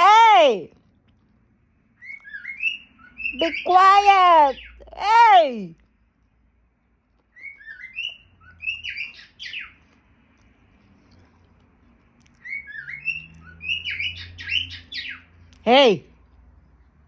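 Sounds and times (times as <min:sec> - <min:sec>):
pet bird chirping and squawking: 0:02.0 - 0:05.4, 0:07.3 - 0:09.8, 0:12.4 - 0:15.5.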